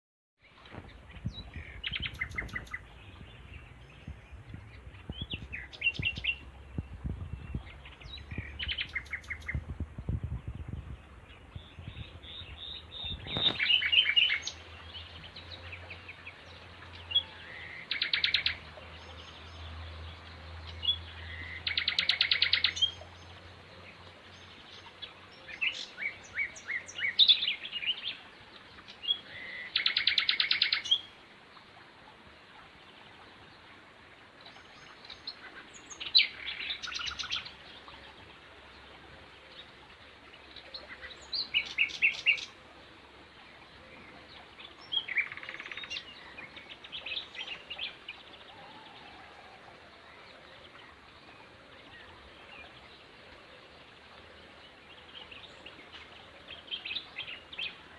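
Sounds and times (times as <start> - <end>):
songbirds singing: 0.4 - 57.9
low rumble with knocks: 3.2 - 8.7.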